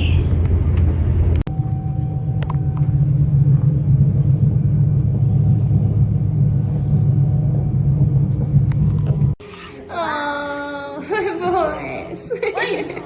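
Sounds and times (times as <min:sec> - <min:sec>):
vehicle rumble from inside: 0:00.0 - 0:09.4.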